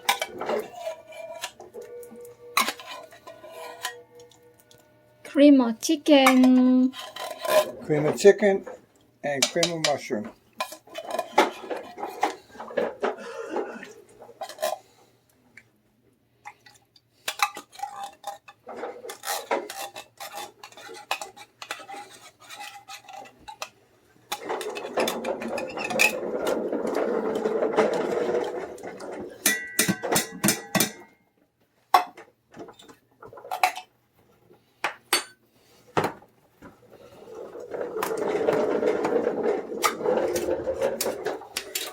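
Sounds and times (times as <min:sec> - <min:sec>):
metal spoon clinking on cans: 0:00.0 - 0:04.8, 0:29.4 - 0:31.2
spoon stirring in pot: 0:00.0 - 0:04.9, 0:19.2 - 0:23.7.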